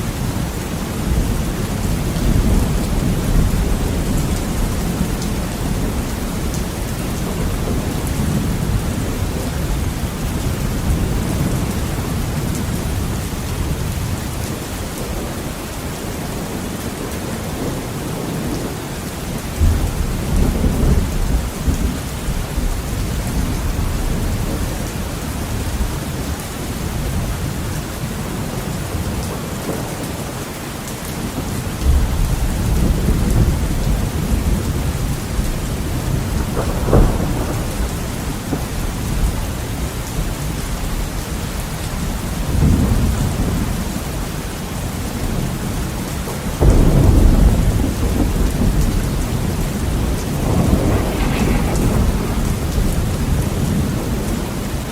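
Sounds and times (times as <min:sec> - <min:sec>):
thunder rumbling: 0:00.0 - 0:15.6, 0:19.4 - 0:26.3, 0:31.2 - 0:41.1, 0:44.8 - 0:54.9
heavy rain on a window: 0:00.0 - 0:54.9.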